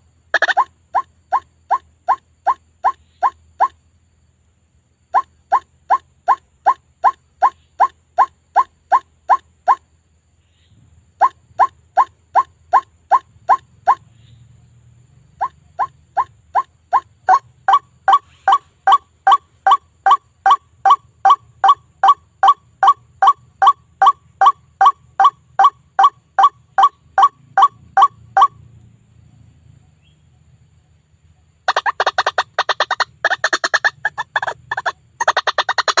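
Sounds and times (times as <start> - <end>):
waterhen calls: 0.3 - 3.8, 5.1 - 9.8, 11.2 - 14.1, 15.4 - 28.6, 31.6 - 36.0
harsh chattering bird calls: 15.4 - 28.5, 31.6 - 36.0.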